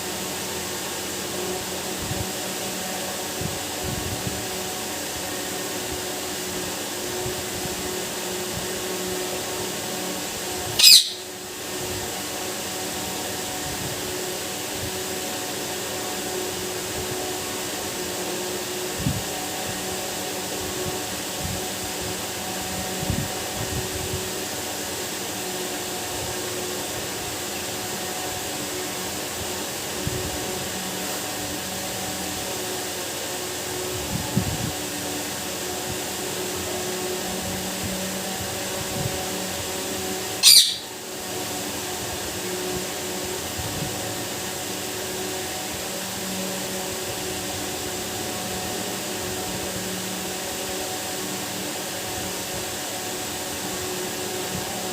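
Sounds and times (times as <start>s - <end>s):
mechanical hum: 0.0s - 54.9s
parrot screeching: 10.8s - 11.3s, 40.4s - 40.9s.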